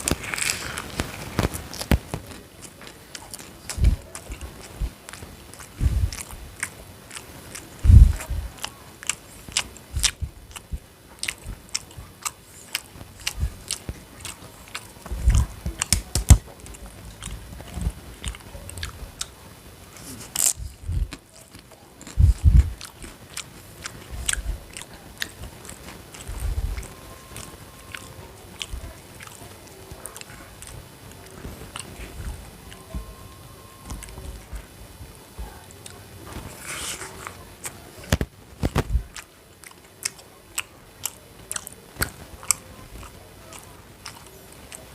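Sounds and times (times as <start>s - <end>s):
crisp clicks: 0.0s - 7.3s, 35.8s - 44.9s
person biting and chewing food: 0.0s - 19.4s, 20.0s - 33.2s, 35.8s - 44.9s.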